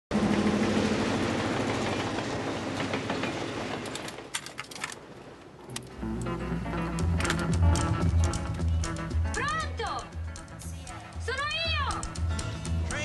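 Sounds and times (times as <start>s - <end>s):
train cars rumbling past: 0.1s - 4.3s
low music tones: 5.7s - 13.0s.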